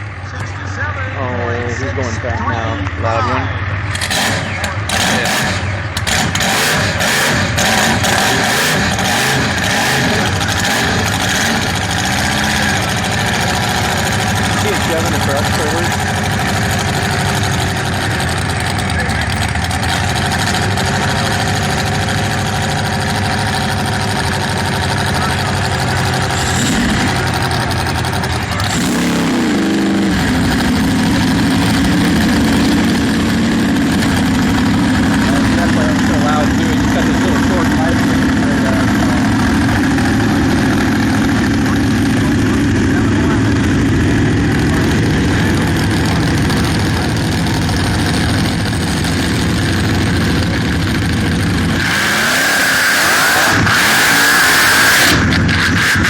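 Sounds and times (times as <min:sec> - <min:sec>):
boat engine running loud: 0:00.8 - 0:56.0
high-pitched engine note with hiss: 0:26.2 - 0:27.5.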